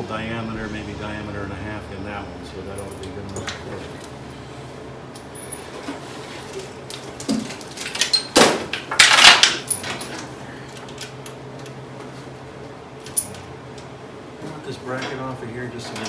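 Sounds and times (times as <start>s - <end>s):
metal tools clinking: 2.7s - 4.3s, 5.1s - 11.8s, 13.0s - 16.0s.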